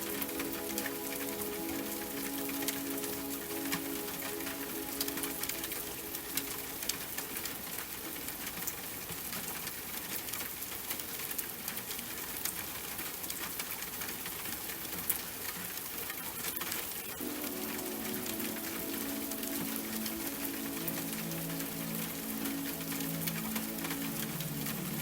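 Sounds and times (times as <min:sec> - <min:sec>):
rain drops ticking on hard surface: 0:00.0 - 0:25.0.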